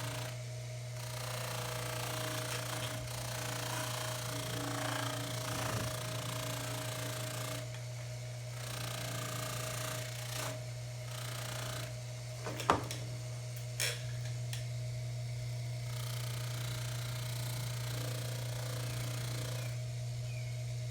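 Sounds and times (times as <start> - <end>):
lathe humming: 1.0 - 7.9.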